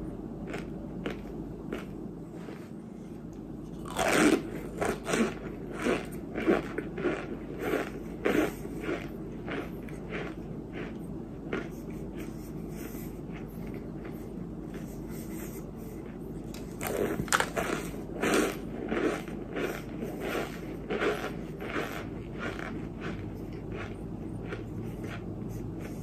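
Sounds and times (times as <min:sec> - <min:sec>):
clay being bitten and chewed: 0:03.3 - 0:12.4, 0:16.0 - 0:26.0.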